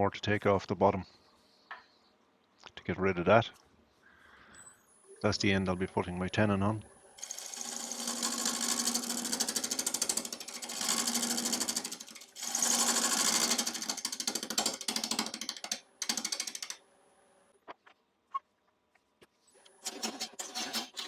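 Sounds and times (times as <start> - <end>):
lathe tool chattering on wood: 7.2 - 16.8, 19.8 - 21.0.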